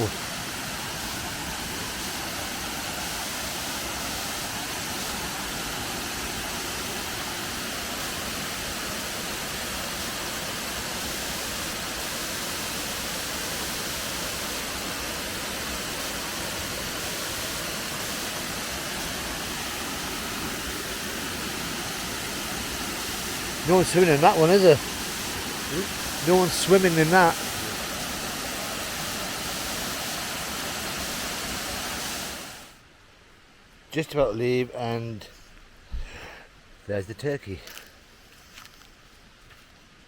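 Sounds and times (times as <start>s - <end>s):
waterfall rushing: 0.0s - 32.8s.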